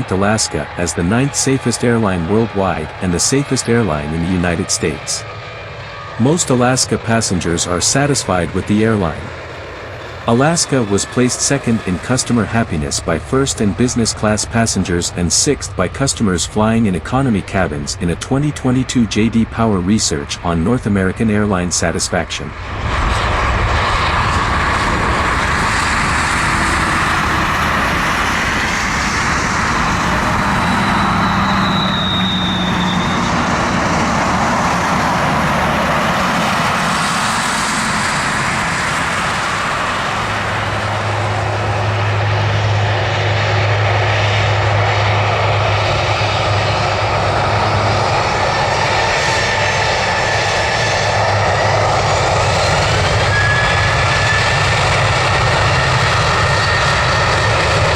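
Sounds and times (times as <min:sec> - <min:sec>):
jet engines running: 0:00.0 - 0:57.9
faint whining tones: 0:24.3 - 0:43.8.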